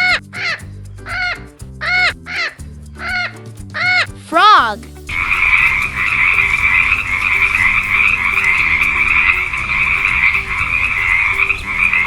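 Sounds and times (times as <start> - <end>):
frogs chorus: 5.1 - 12.0.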